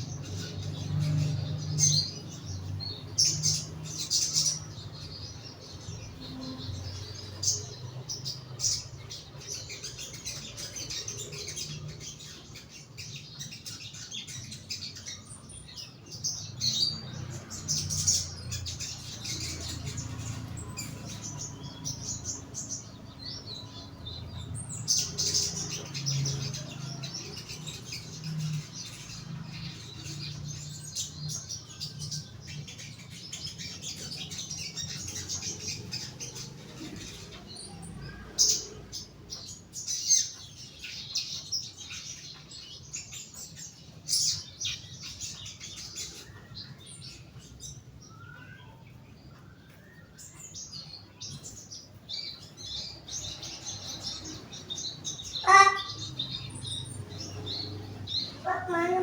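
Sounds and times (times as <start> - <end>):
bird chirping and twittering: 0.0 - 59.0.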